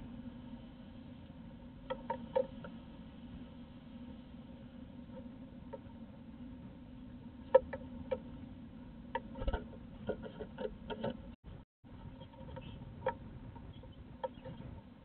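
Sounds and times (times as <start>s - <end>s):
steady low hum: 0.0s - 15.0s
bird tapping and scratching on wood: 9.2s - 11.2s.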